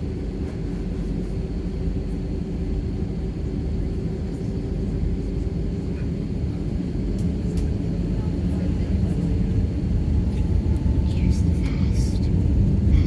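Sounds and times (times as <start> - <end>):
jet cabin low rumble: 0.0 - 13.0.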